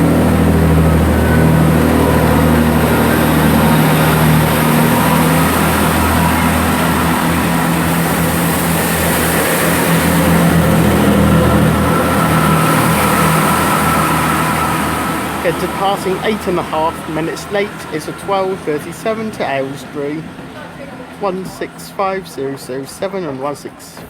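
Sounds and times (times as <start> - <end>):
train diesel engines humming: 0.0 - 24.0.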